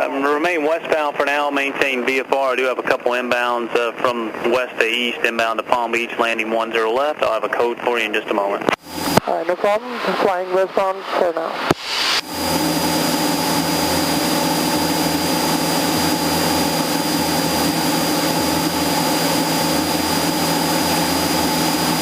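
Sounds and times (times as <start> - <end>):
thin high whine: 8.6 - 22.0
airplane engine droning in cabin: 8.8 - 22.0.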